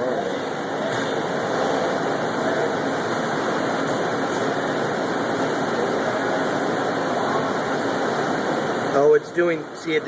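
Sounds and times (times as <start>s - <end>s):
printer fans and print head: 0.0s - 10.0s.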